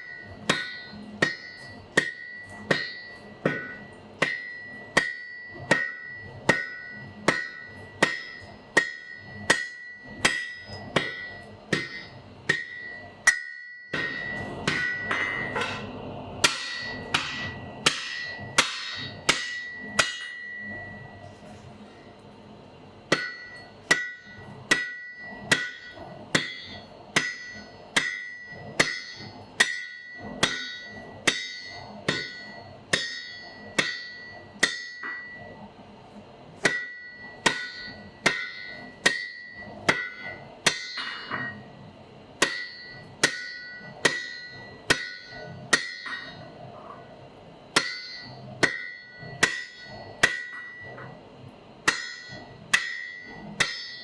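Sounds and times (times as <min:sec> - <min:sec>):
hammer striking anvil: 0:00.0 - 0:21.0, 0:23.1 - 0:35.5, 0:36.6 - 0:41.6, 0:42.4 - 0:46.5, 0:47.7 - 0:51.1, 0:51.8 - 0:54.0.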